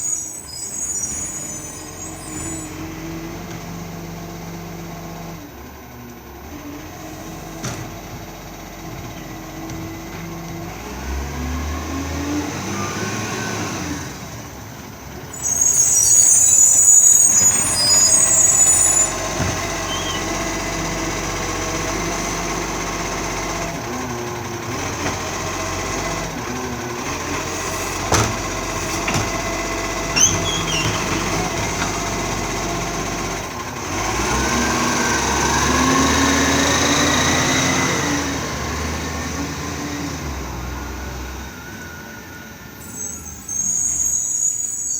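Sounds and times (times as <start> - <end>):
short squeal: 0.0 - 2.9, 15.3 - 20.5, 30.0 - 31.9, 42.7 - 44.9
garbage truck engine running: 0.0 - 44.6
air release hiss: 15.3 - 20.4.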